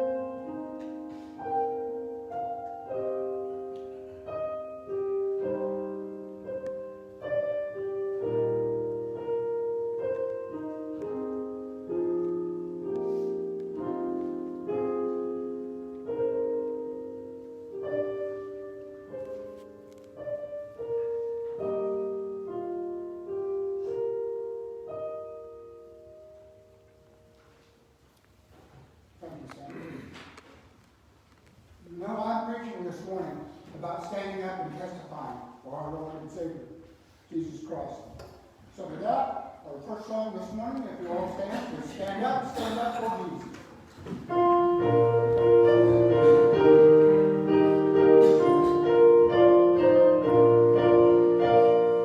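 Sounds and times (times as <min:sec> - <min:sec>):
solo piano playing chords: 0:00.0 - 0:28.0, 0:44.2 - 0:52.0.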